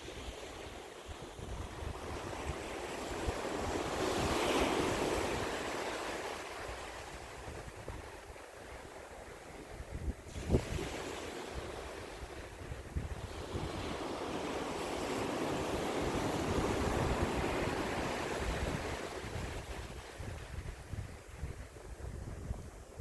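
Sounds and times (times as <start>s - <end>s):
ocean waves on shore: 0.0s - 23.0s
wind buffeting microphone: 0.0s - 23.0s.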